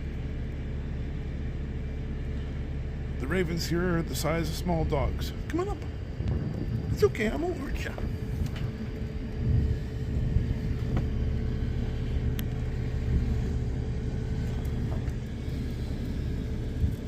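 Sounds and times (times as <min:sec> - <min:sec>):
machine motor humming: 0:00.0 - 0:17.0.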